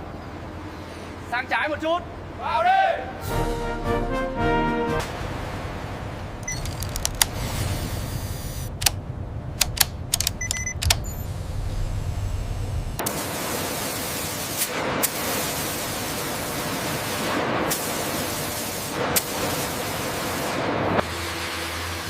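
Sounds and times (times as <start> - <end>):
low hum: 3.2 - 13.2
high-pressure spray hissing: 13.1 - 20.6.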